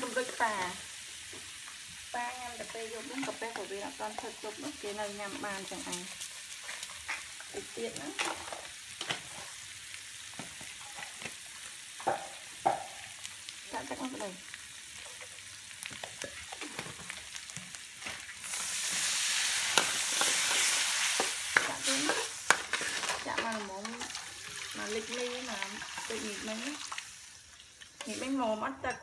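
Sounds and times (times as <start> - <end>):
food sizzling: 0.0 - 29.0
spatula scraping a wok: 18.0 - 24.7, 28.0 - 28.6.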